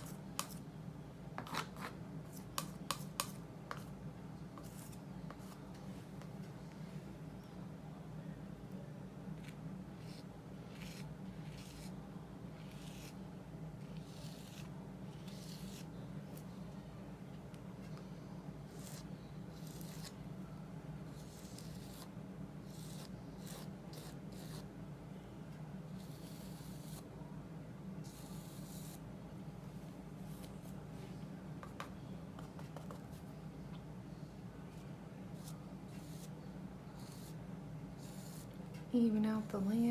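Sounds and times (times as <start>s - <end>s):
steady low hum: 0.0s - 39.9s
paintbrush scrubbing on paper: 10.0s - 11.9s, 12.6s - 13.2s
paintbrush strokes on paper: 38.0s - 38.5s.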